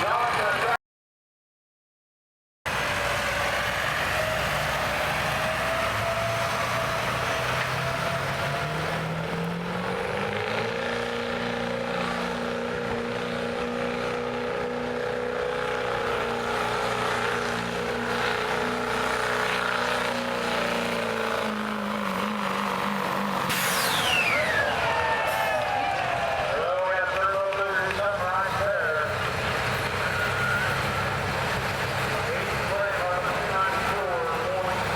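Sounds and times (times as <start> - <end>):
diesel pickup engine revving: 2.7 - 34.9.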